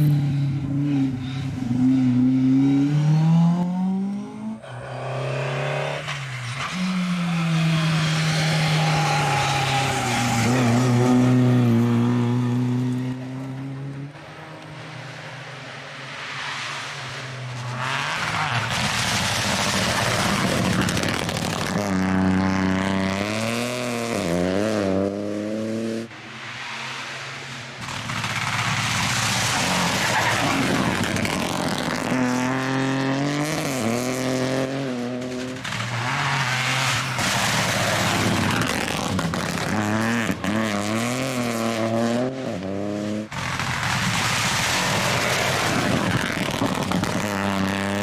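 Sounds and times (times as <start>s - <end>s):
rally car engines at full throttle: 0.0s - 48.0s
tyre and rushing noise: 26.4s - 32.4s.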